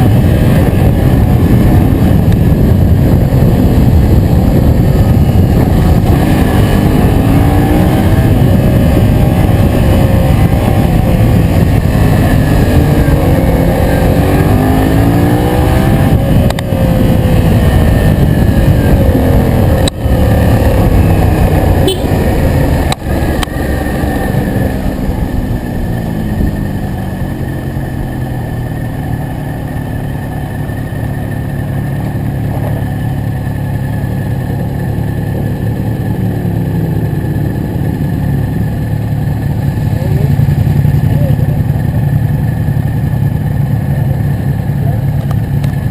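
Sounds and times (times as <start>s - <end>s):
wind rush on microphone: 0.0s - 28.8s
motorcycle engine revving: 0.0s - 45.9s.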